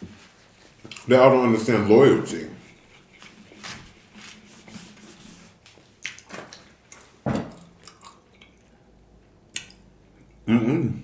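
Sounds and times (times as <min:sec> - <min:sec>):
person chewing: 0:00.8 - 0:01.1, 0:06.9 - 0:08.8
wet mouth clicks: 0:09.5 - 0:09.9.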